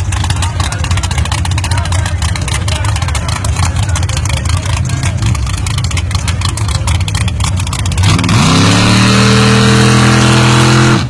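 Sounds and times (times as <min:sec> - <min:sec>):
drag car engine revving: 0:00.0 - 0:11.0.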